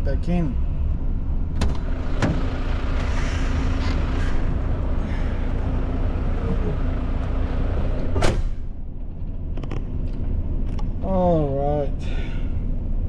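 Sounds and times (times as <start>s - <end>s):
diesel truck engine idling: 1.0s - 9.2s.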